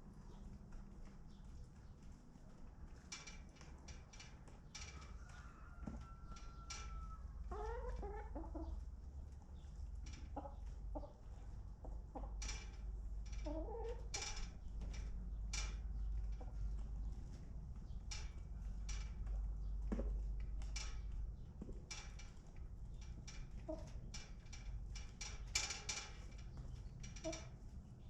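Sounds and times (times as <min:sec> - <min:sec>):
chickens clucking: 0:05.1 - 0:09.0, 0:10.2 - 0:12.4, 0:13.4 - 0:14.2, 0:23.5 - 0:24.0.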